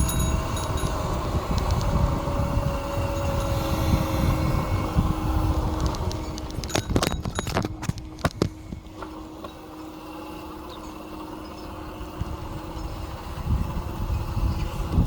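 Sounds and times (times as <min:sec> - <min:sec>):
sharp knocks and rattles: 0:00.0 - 0:02.0, 0:05.7 - 0:09.6
wind rumbling on microphone: 0:00.0 - 0:10.0, 0:10.7 - 0:15.0
electric bike hum: 0:00.0 - 0:15.0.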